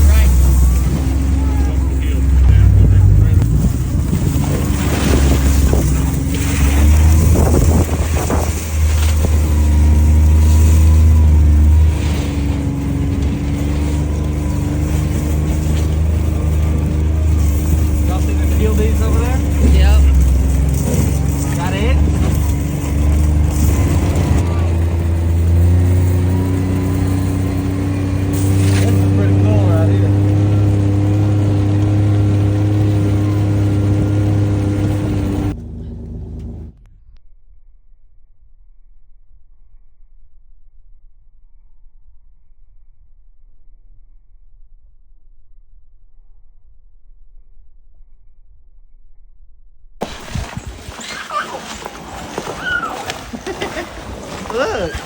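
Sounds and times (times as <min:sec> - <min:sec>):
vehicle engine running: 0:00.0 - 0:37.2, 0:50.0 - 0:55.0.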